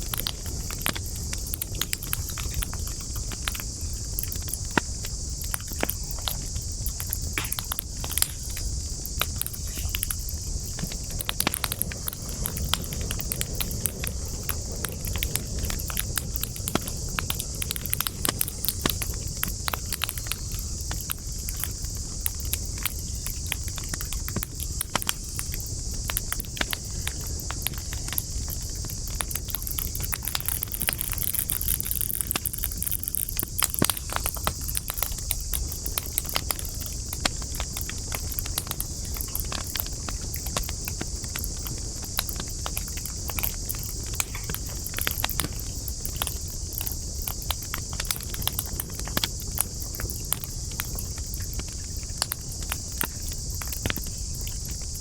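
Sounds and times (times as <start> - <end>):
sharp pops and snaps: 0.0 - 54.9
campfire crackling: 0.0 - 55.0
steady high-pitched hiss: 0.0 - 55.0.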